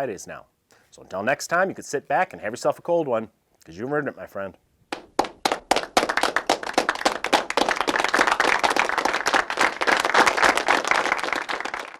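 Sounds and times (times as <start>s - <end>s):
group applause: 4.9s - 11.9s.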